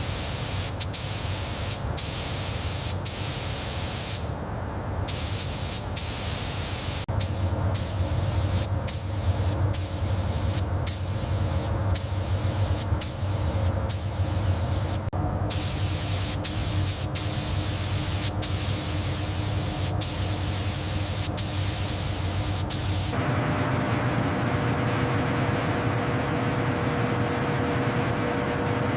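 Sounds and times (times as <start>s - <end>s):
spray-like hiss: 0.0s - 4.4s, 5.1s - 23.2s.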